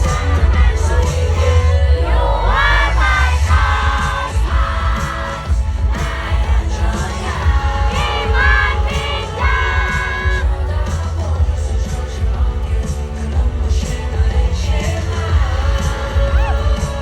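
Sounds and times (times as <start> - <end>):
crowd yelling along: 0.0 - 11.0, 14.9 - 17.0
live pop music with heavy bass: 0.0 - 17.0
person singing: 0.0 - 17.0.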